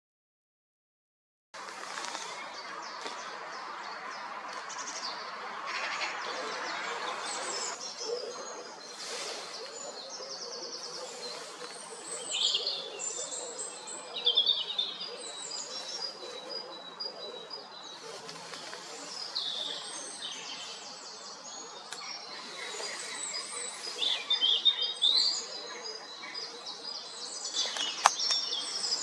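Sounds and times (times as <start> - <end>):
songbirds chirping and trilling: 1.6 - 29.0.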